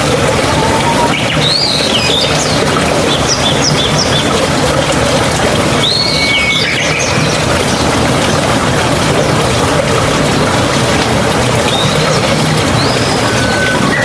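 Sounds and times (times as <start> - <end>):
mountain stream rushing: 0.0 - 14.0.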